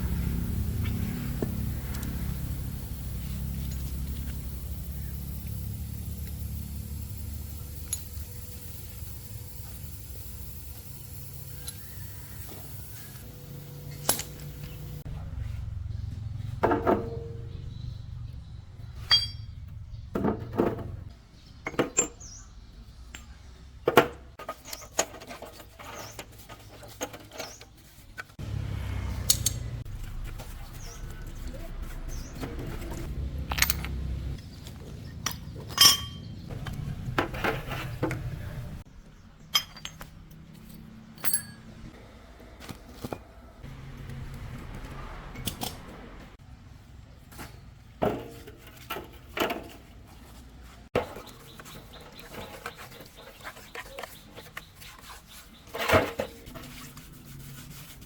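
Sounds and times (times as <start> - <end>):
metal tools clinking and knocking: 19.0 - 20.8, 33.2 - 34.4, 35.1 - 38.2, 39.4 - 41.9.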